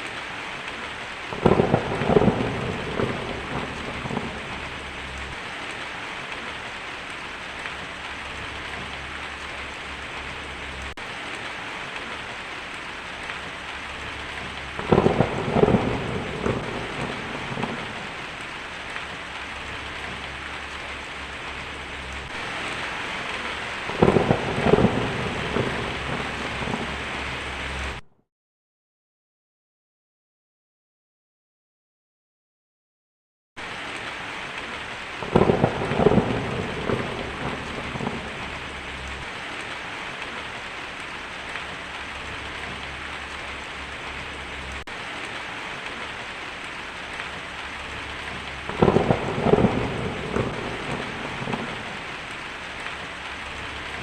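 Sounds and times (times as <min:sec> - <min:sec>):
heavy rain on a tin roof: 0:00.0 - 0:28.0, 0:33.6 - 0:54.0
thunder rolling: 0:01.3 - 0:05.6, 0:13.9 - 0:28.0, 0:35.2 - 0:39.7, 0:47.7 - 0:52.4.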